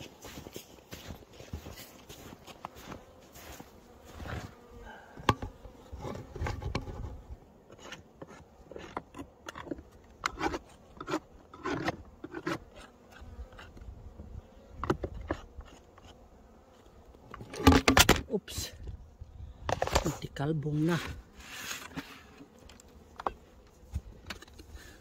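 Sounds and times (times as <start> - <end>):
honeybees buzzing: 0.0 - 18.1, 19.0 - 25.0
short knocks and scrapes: 5.2 - 13.8.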